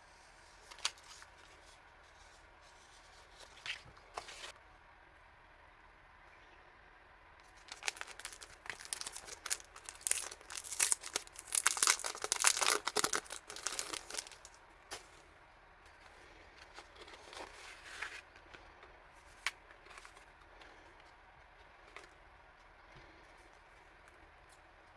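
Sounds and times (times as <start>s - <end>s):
packaging crinkling and tearing: 0.6s - 1.3s, 7.5s - 14.6s.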